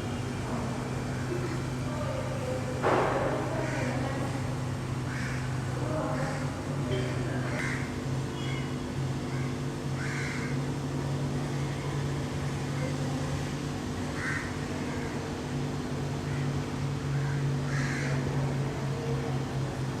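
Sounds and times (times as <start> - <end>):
steady low hum: 0.0 - 20.0
crow cawing: 5.1 - 5.5, 7.4 - 8.7, 9.3 - 10.7, 14.2 - 15.2, 16.3 - 18.4.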